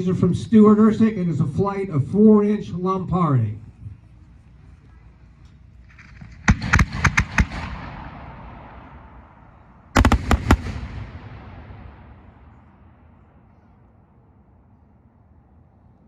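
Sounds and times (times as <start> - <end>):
rumbling echoes: 5.6 - 15.9
fireworks bangs: 5.9 - 13.6.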